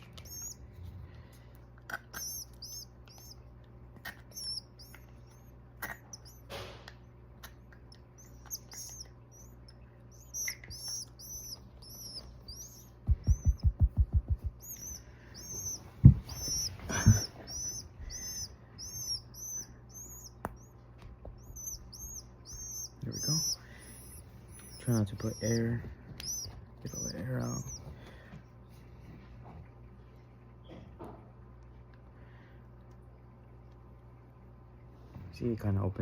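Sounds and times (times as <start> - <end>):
baby bird chirping: 0.0 - 0.8, 1.9 - 6.6, 7.4 - 28.2
low thumps: 12.0 - 18.4.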